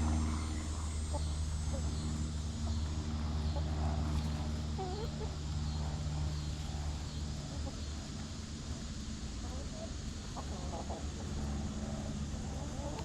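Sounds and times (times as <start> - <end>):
low engine drone: 0.0 - 13.0
hen clucking: 3.5 - 5.5.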